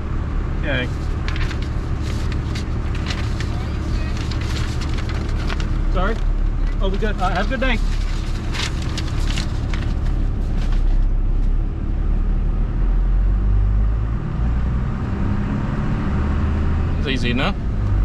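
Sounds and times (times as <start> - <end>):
truck engine running: 0.0 - 13.1.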